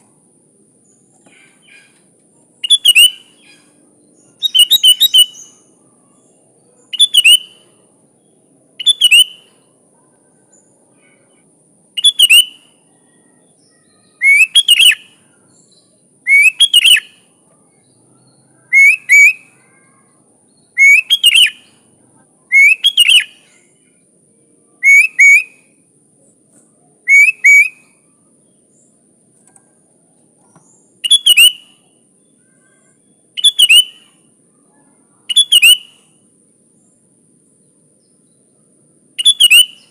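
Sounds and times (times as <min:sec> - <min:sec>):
bird singing whistled phrases: 0:02.6 - 0:05.7, 0:06.7 - 0:07.8, 0:08.8 - 0:09.7, 0:12.0 - 0:17.3, 0:18.2 - 0:21.9, 0:22.5 - 0:23.6, 0:24.8 - 0:25.7, 0:27.0 - 0:28.0, 0:31.0 - 0:34.3, 0:35.3 - 0:36.2, 0:39.2 - 0:39.9.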